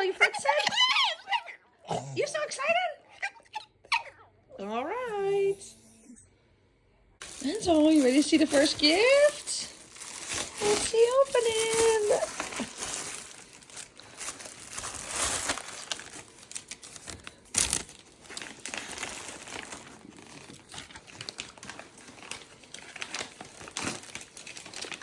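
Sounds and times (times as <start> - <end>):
paper ripping: 7.2 - 25.0
wrapping paper crinkling: 7.2 - 25.0.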